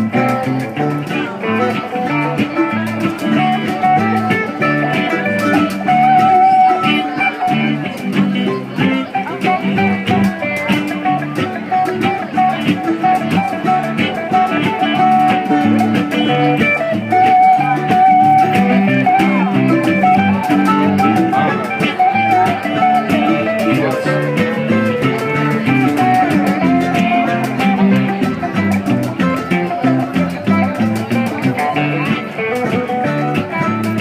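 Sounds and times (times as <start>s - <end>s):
guitar: 0.0s - 34.0s
mandolin: 0.0s - 34.0s.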